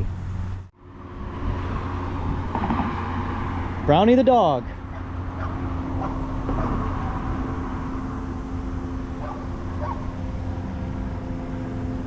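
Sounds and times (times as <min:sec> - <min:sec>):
low hum: 0:00.0 - 0:04.0, 0:04.6 - 0:12.0
traffic rumble: 0:00.0 - 0:12.0
dog barking: 0:04.9 - 0:07.2, 0:09.2 - 0:10.1.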